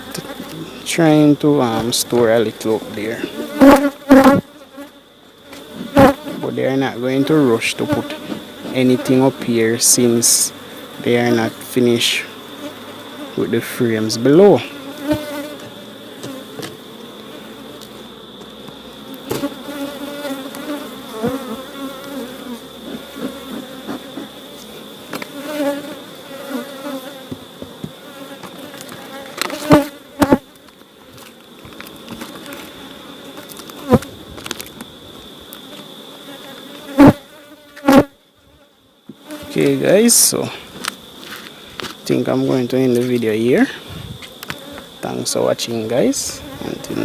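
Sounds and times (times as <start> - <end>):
honeybees buzzing: 0.0 - 47.0.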